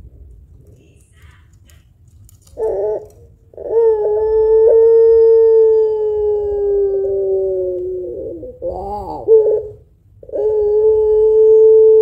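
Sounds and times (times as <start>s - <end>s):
dove cooing: 2.5s - 12.0s.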